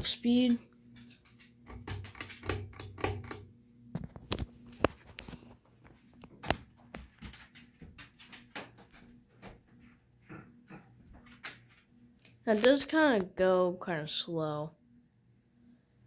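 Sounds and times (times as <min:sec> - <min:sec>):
ceiling fan motor hum: 0:00.0 - 0:16.0
fan clicks and knocks: 0:00.4 - 0:03.4.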